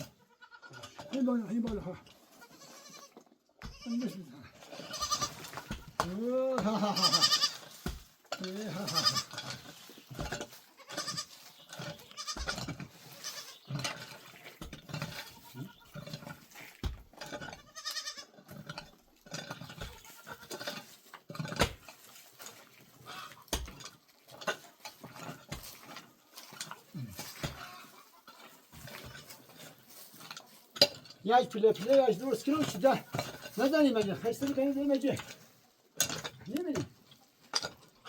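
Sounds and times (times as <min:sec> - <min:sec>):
goats bleating: 0:00.0 - 0:01.0, 0:02.2 - 0:07.8, 0:08.4 - 0:09.6, 0:10.7 - 0:13.7, 0:15.0 - 0:16.0, 0:17.6 - 0:18.4, 0:19.8 - 0:20.6, 0:26.9 - 0:28.6.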